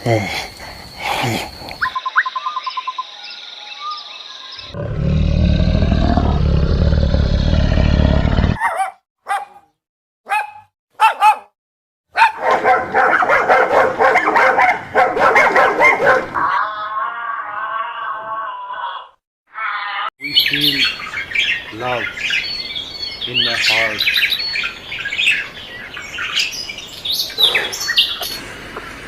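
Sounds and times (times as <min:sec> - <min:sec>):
dog barking: 0:08.6 - 0:16.6.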